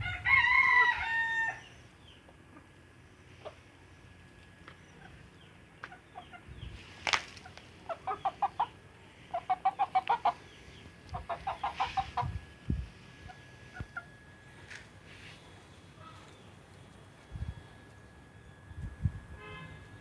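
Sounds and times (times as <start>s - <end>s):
chickens clucking: 2.0s - 14.8s.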